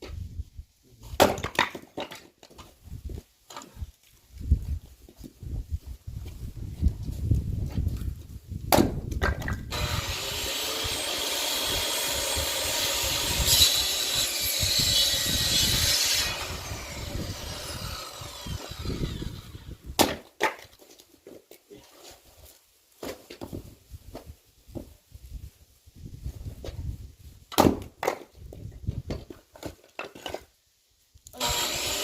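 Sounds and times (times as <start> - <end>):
wood strikes splitting firewood: 1.1 - 2.7, 8.7 - 10.6, 12.5 - 21.4, 23.0 - 24.9, 27.5 - 30.5.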